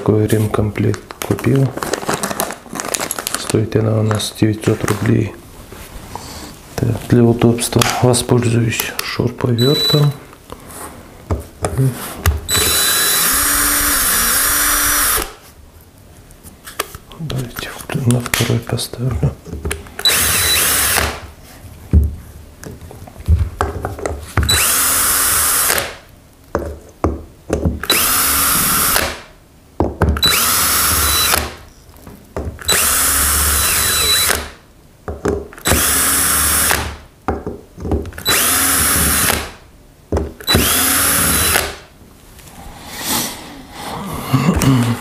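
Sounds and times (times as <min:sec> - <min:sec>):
cordless drill spinning: 0:09.6 - 0:10.2, 0:12.5 - 0:15.4, 0:20.0 - 0:21.2, 0:24.5 - 0:25.8, 0:27.8 - 0:29.0, 0:30.2 - 0:31.5, 0:32.7 - 0:34.4, 0:35.6 - 0:36.8, 0:38.2 - 0:39.4, 0:40.4 - 0:41.7.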